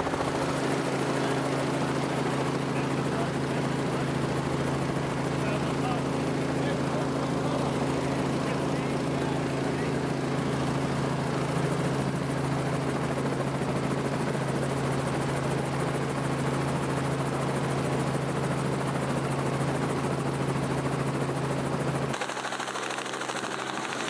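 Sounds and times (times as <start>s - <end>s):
helicopter engine and rotor drone: 0.0s - 24.0s
thin mechanical running sound: 22.1s - 24.0s.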